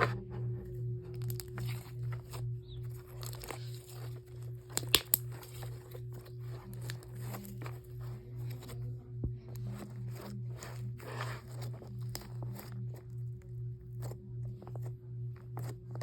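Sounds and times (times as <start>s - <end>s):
low pulsing hum: 0.0s - 16.0s
slime squishing and crackling: 1.2s - 8.9s, 9.5s - 16.0s.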